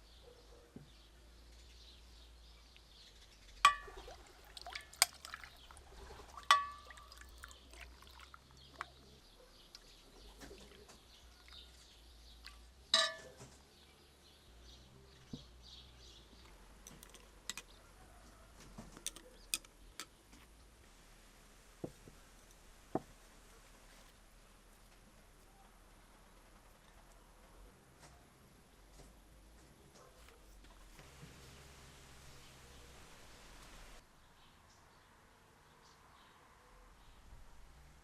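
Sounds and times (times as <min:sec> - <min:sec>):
tableware clinking: 0:03.7 - 0:04.0, 0:06.5 - 0:06.9, 0:13.0 - 0:13.4.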